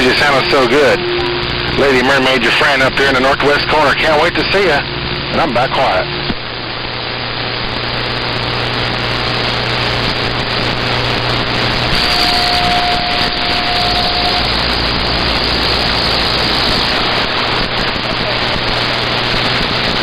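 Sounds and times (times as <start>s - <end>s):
steady whistle tone: 0.0s - 6.2s, 11.7s - 18.4s
low steady hum: 0.0s - 20.0s
radio static hiss: 0.0s - 20.0s.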